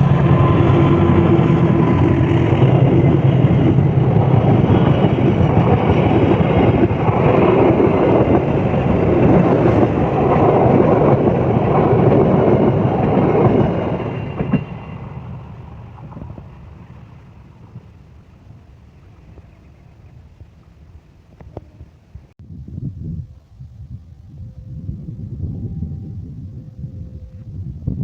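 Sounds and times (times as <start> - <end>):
train wheels rushing on rails: 0.0 - 21.7.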